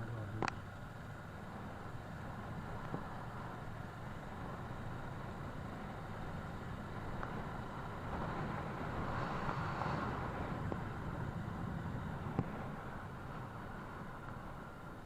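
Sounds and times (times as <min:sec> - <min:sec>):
motorcycle engine rumble: 0:00.0 - 0:15.0
road noise: 0:00.0 - 0:15.0
wind rush: 0:07.9 - 0:13.8.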